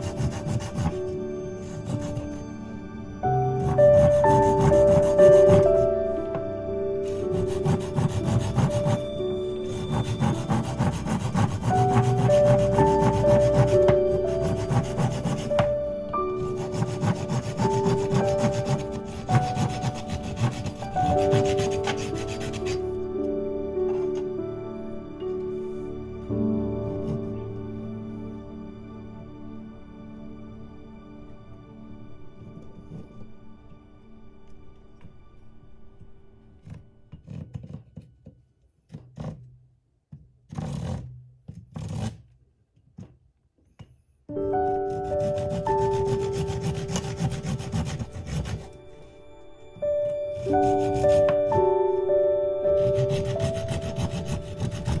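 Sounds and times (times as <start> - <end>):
saw cutting wood: 0.0 - 2.4, 3.6 - 5.9, 7.0 - 22.9, 44.9 - 48.8, 50.3 - 51.8, 52.7 - 55.0
soft music with held notes: 0.0 - 37.8, 44.3 - 55.0.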